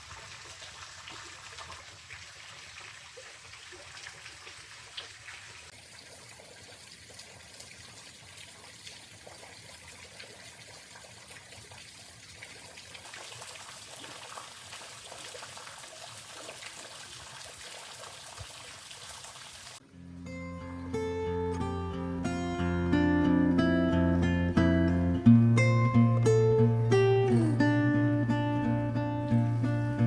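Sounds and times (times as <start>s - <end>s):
water trickling: 0.0s - 19.8s, 21.5s - 30.0s
plucked guitar music: 19.8s - 30.0s.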